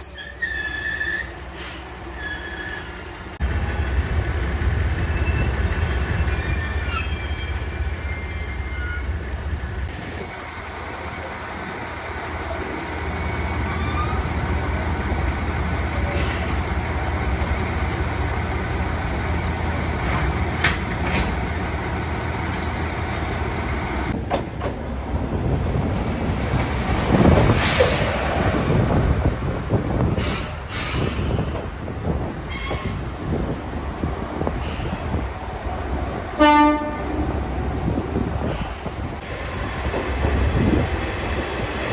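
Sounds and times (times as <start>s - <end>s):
high thin wheel squeal: 0.0s - 9.2s, 13.2s - 14.3s
diesel railcar rumbling on rails: 0.0s - 41.9s.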